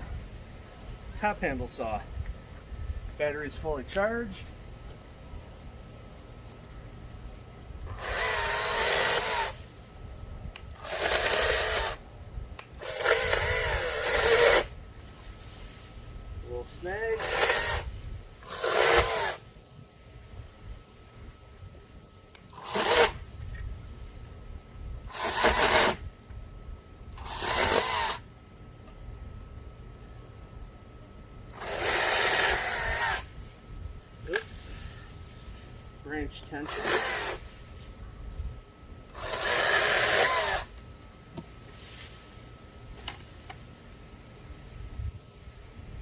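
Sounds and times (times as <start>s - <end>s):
battery chainsaw motor whine: 7.8s - 9.8s, 10.5s - 12.1s, 12.7s - 14.8s, 16.4s - 19.5s, 22.3s - 24.2s, 25.0s - 26.3s, 27.0s - 28.3s, 31.5s - 37.9s, 39.0s - 40.9s.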